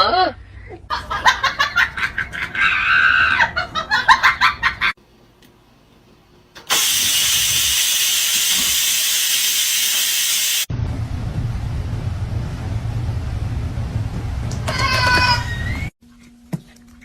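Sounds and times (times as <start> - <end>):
loud steady hiss: 6.7 - 10.7.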